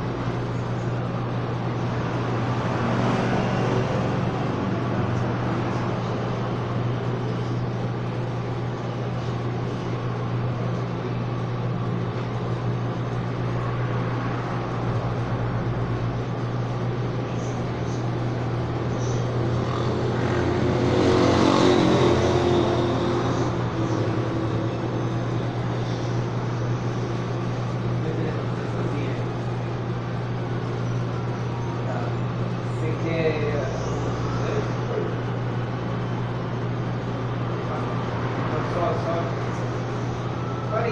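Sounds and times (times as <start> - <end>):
low mechanical hum: 0.0 - 40.9
road traffic: 0.0 - 40.9
vehicle passing: 1.8 - 7.1, 17.9 - 28.4.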